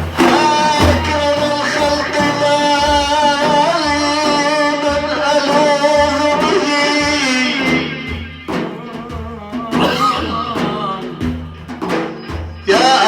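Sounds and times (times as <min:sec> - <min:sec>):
low frame drum beats: 0:00.0 - 0:13.0.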